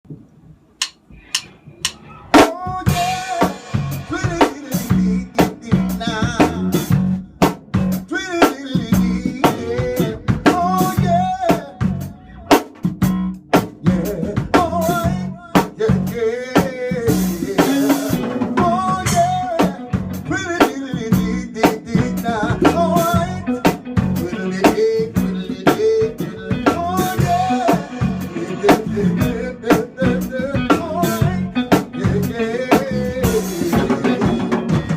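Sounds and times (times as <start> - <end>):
sharp clicks: 0.8 - 2.0
band playing upbeat music: 1.2 - 34.9.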